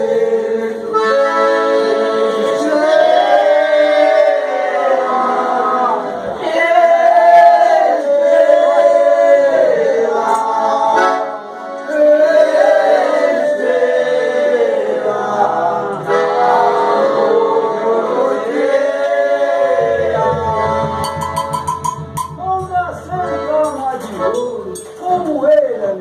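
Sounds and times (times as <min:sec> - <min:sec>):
male voices singing in chorus: 0:00.0 - 0:21.1
pulsing instrumental accompaniment: 0:19.8 - 0:24.9.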